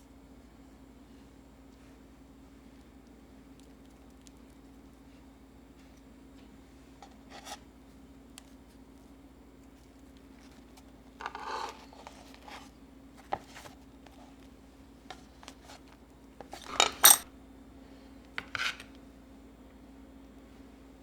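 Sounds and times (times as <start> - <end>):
household items clicking and clinking: 16.4 - 17.3.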